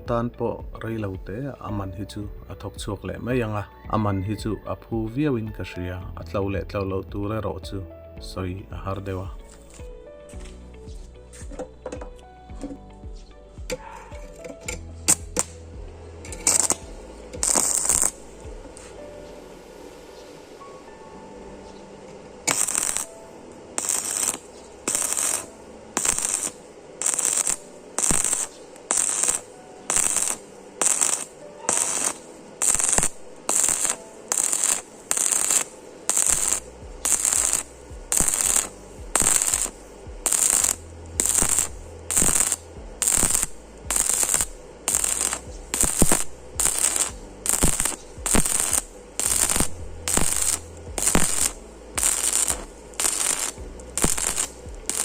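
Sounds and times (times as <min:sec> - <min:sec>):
wire brush scrubbing metal: 0:23.8 - 0:55.0.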